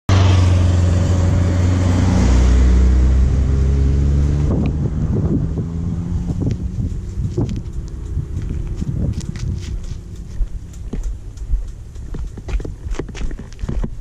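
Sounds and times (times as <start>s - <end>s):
motorcycle engine running: 2.8s - 14.0s
wind on microphone: 3.2s - 14.0s.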